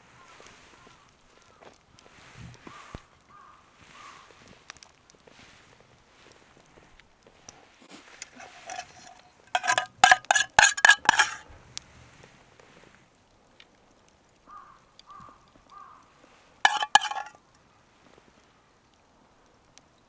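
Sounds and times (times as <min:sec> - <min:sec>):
dishes clinking: 0:08.2 - 0:11.4, 0:16.7 - 0:17.3.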